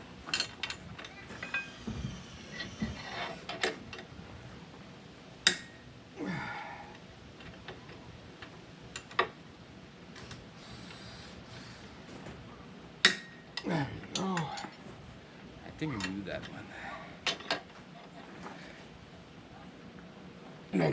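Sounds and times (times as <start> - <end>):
wrench clinking on metal: 0.3 - 4.0.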